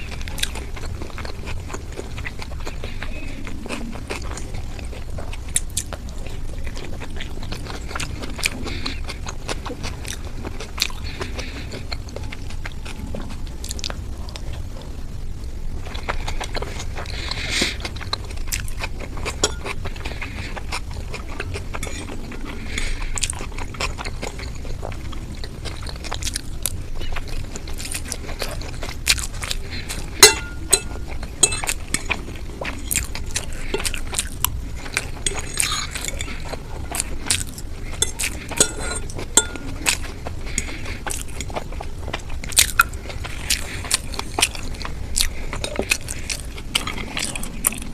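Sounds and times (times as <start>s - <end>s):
person chewing: 0.0s - 47.9s
clinks against a dish: 30.2s - 31.7s, 38.1s - 39.6s.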